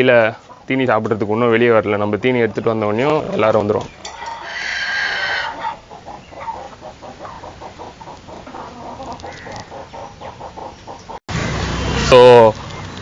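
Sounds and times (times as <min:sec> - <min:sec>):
chickens clucking: 0:00.0 - 0:11.2
chicken drawn-out call: 0:04.1 - 0:11.2.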